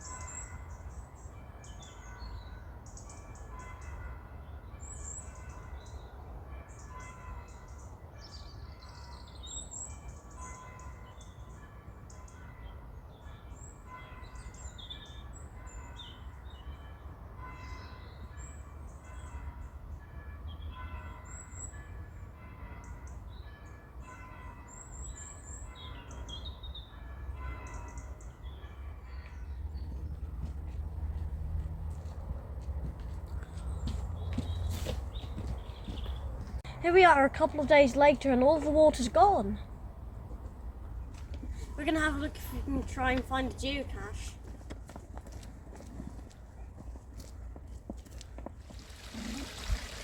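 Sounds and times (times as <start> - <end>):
small birds chirping: 33.3 - 36.6.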